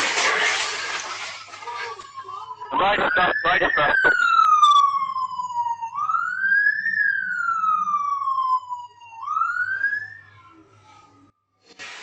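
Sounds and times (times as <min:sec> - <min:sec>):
police siren wailing: 0:01.9 - 0:10.7.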